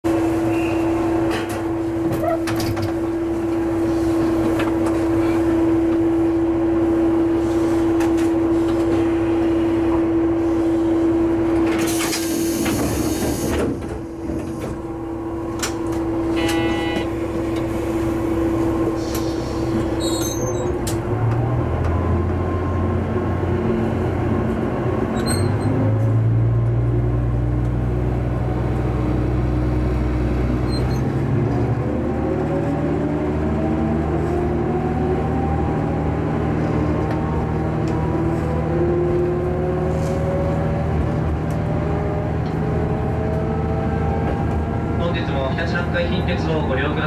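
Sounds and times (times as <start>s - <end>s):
electronic tone: 16.3s - 17.1s.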